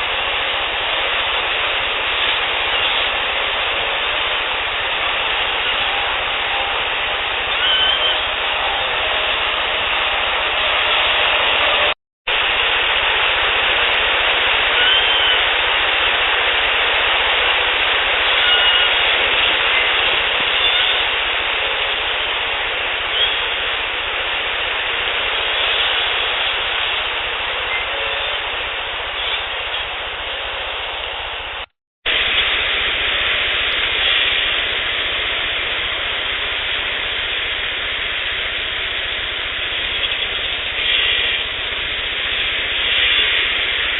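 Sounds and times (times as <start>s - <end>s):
steady hiss: 0.0s - 43.9s
faint sliding whistles: 7.5s - 8.3s, 14.8s - 15.5s, 18.4s - 19.0s, 23.1s - 23.5s.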